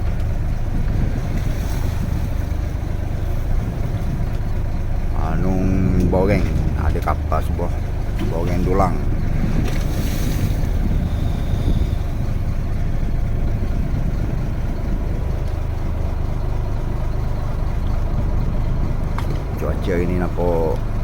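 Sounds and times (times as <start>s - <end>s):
boat engine drone: 0.0s - 21.0s
wind on microphone: 5.4s - 15.4s.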